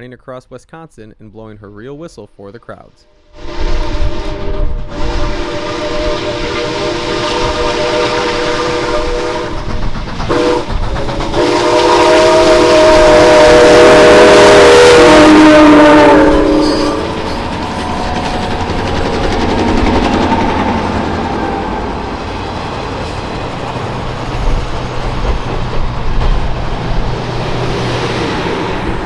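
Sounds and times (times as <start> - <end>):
steam locomotive chime whistle: 3.0 - 9.7, 10.3 - 18.6
train running rumble: 3.4 - 29.0.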